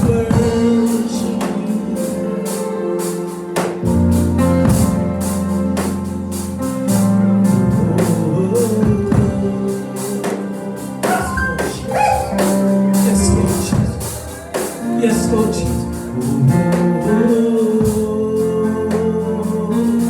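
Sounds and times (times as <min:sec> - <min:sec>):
people singing: 0:00.0 - 0:04.0, 0:07.4 - 0:20.0
bass and keyboard chords: 0:00.0 - 0:20.0
drums and tambourine beat: 0:11.0 - 0:14.9.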